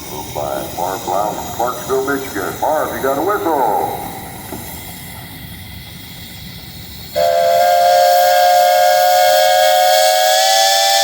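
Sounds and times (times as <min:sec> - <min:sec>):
steam hissing: 0:00.0 - 0:11.0
steam whistle blast: 0:07.1 - 0:11.0.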